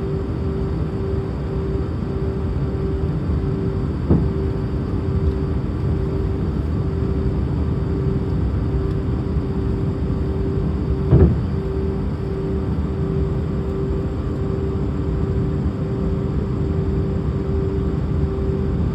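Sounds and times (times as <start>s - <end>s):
aircraft cabin engine rumble: 0.0s - 18.9s
faint pulsing hum: 0.0s - 18.9s
short thumps: 4.1s - 4.5s.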